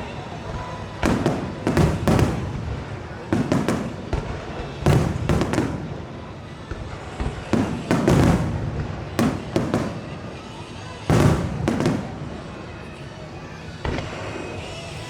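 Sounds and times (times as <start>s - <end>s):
firework cracks and booms: 0.4s - 12.7s, 13.8s - 15.0s.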